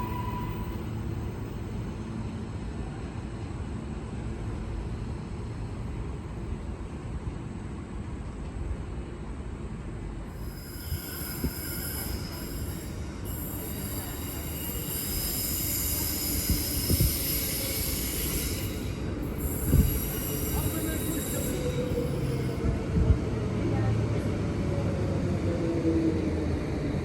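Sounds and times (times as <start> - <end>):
train wheels squealing: 0.0 - 1.8, 10.3 - 22.8
train rumbling on rails: 0.0 - 27.0.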